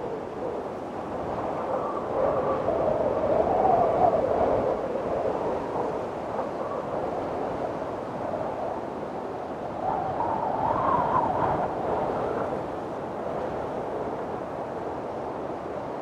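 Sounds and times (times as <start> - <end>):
strong wind whistling: 0.0 - 16.0.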